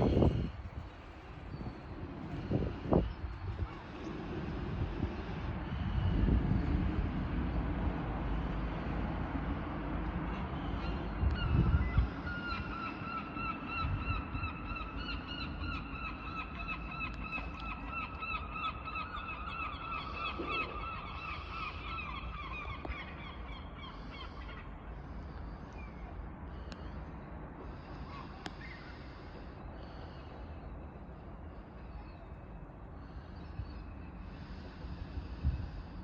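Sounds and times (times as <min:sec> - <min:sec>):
low rumble on microphone: 0:00.0 - 0:12.7.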